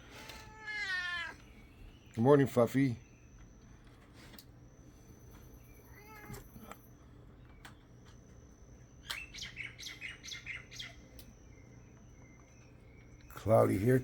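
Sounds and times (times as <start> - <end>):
cat meowing: 0.3 - 1.4, 5.9 - 6.5
bird chirping: 5.1 - 14.0.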